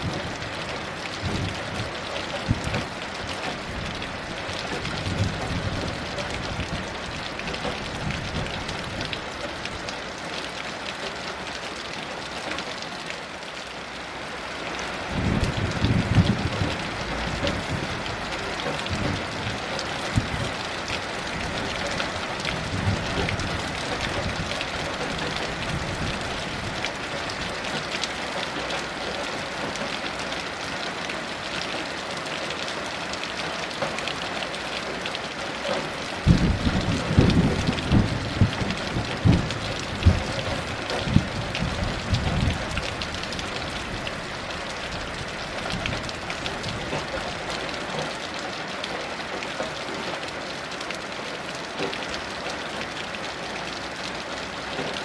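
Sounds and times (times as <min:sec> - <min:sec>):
heavy rain falling: 0:00.0 - 0:55.0
distant thunder rumbling: 0:36.2 - 0:42.8.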